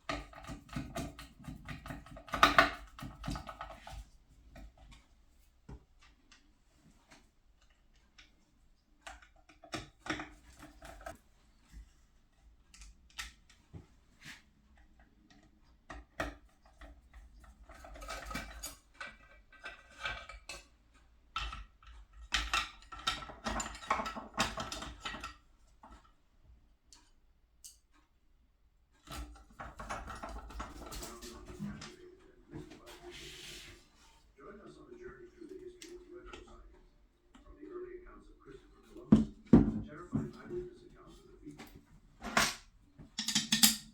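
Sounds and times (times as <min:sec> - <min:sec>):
metallic clatter of tools: 0:17.6 - 0:20.7, 0:42.2 - 0:43.9.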